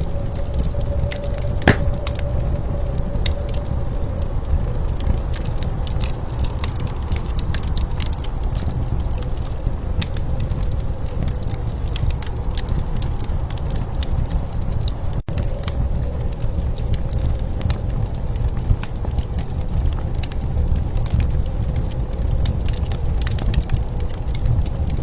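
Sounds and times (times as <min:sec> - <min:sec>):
wood fire crackling: 0:01.7 - 0:02.2.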